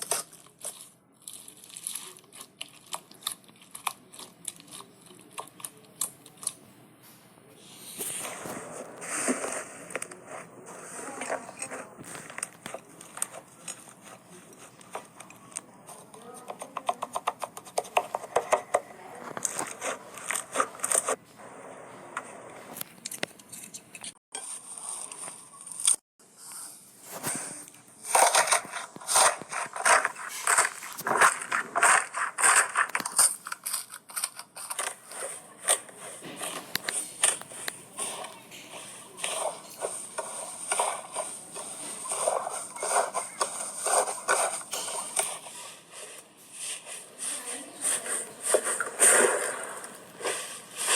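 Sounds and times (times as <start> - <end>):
slime squishing and crackling: 0.0 - 6.6, 27.2 - 50.9.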